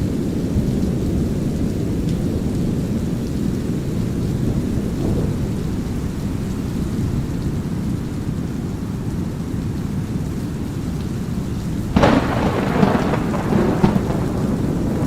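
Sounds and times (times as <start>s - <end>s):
drizzling rain: 0.0s - 15.0s
deep rumble of thunder: 11.9s - 15.0s.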